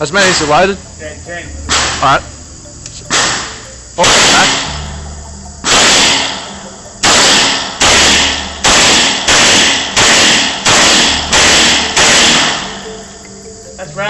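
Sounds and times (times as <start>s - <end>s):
pistol shots echoing indoors: 3.1s - 4.8s, 5.7s - 12.8s.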